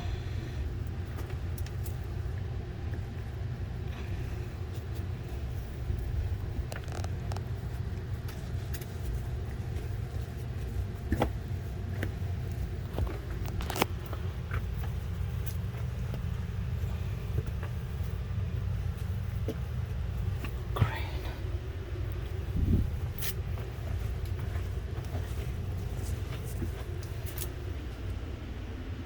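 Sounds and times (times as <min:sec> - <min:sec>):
steady low rumble: 0:00.0 - 0:29.0
refrigerator racks clicking and knocking: 0:19.0 - 0:21.4.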